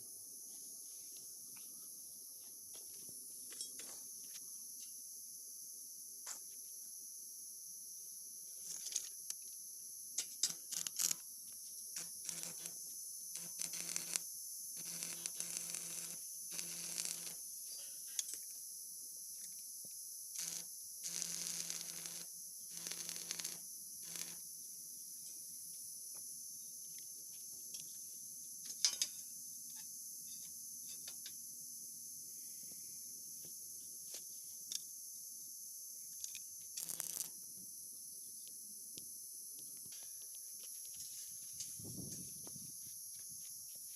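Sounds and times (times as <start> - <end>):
cricket chirring: 0.0 - 43.9
scattered clicks: 36.2 - 37.3.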